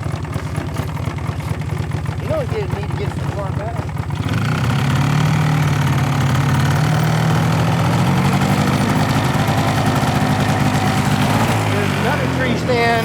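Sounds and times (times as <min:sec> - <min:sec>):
small vehicle engine running: 0:00.0 - 0:13.0.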